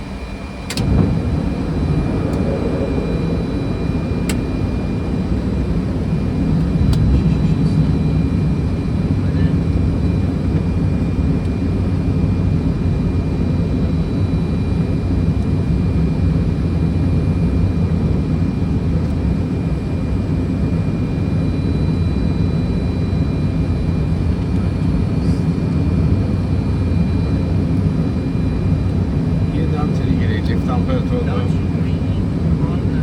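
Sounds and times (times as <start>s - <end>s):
faint high whine: 0.0s - 10.3s
aircraft engine rumble: 0.0s - 33.0s
steady airflow: 0.6s - 9.2s.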